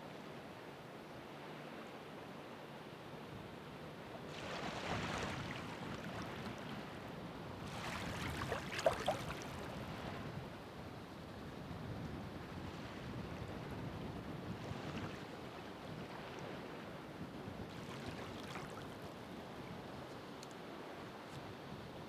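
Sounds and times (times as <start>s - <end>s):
ocean waves breaking: 4.3s - 10.2s, 17.7s - 19.1s.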